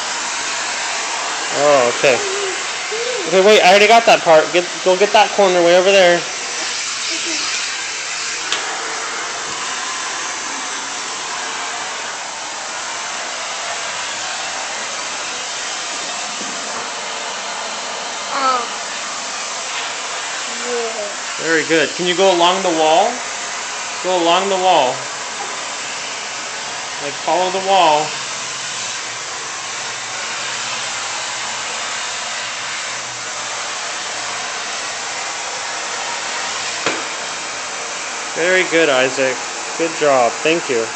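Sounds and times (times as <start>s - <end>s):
vacuum cleaner running: 0.0s - 40.9s
sound with falling pitch: 1.5s - 3.8s.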